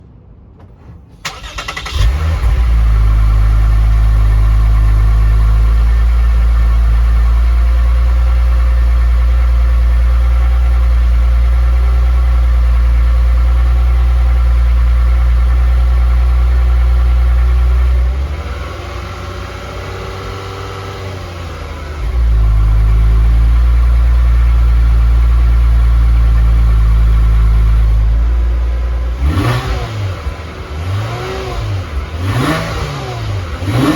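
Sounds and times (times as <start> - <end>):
car engine running loudly: 0.6 - 33.9
starter cranking engine: 1.2 - 2.7.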